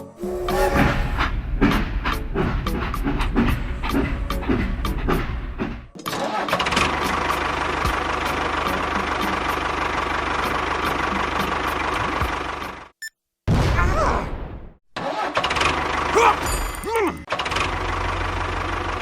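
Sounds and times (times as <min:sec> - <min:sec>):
small engine running: 0:06.5 - 0:12.9, 0:17.3 - 0:19.0.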